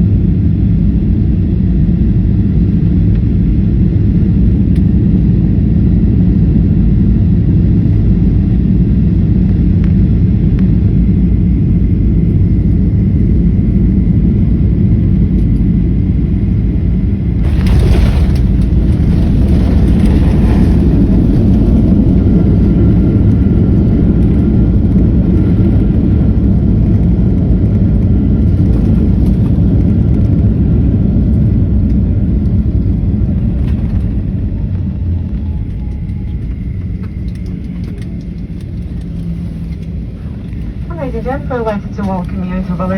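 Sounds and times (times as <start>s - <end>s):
jet airliner landing rumble: 0.0s - 42.9s
rush of noise: 17.1s - 27.3s.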